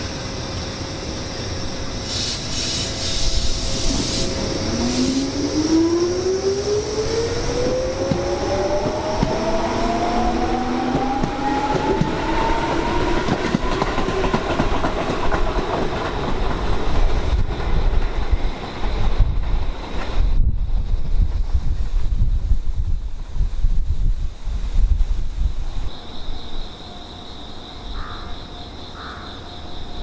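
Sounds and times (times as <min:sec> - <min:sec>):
electric train motor whine: 0:00.0 - 0:13.4
wind rumble on microphone: 0:03.1 - 0:26.0.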